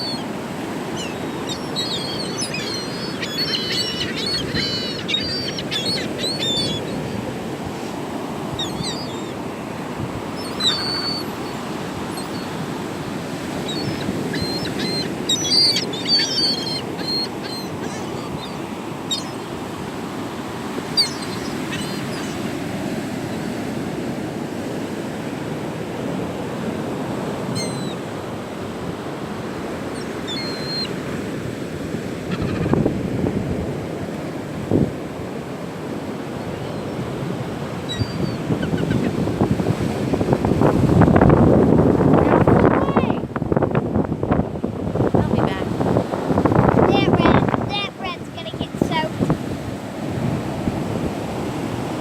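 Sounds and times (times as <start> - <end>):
gulls calling: 0.0 - 23.7, 26.6 - 31.3, 31.9 - 33.1, 35.4 - 40.0
surf rushing: 0.0 - 52.0
wind: 0.0 - 52.0.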